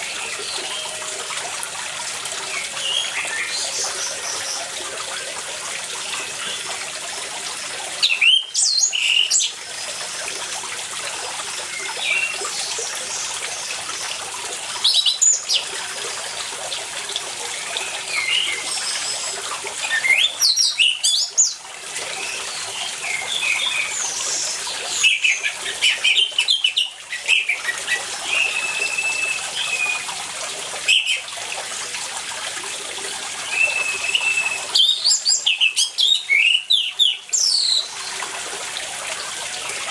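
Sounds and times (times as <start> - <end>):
running water hiss: 0.0 - 39.9.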